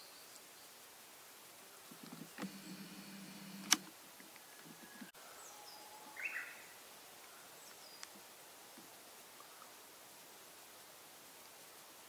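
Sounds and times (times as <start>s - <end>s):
low steady hum: 1.9s - 5.1s
sharp click: 3.5s - 3.9s
songbird whistles and chirps: 4.4s - 6.7s.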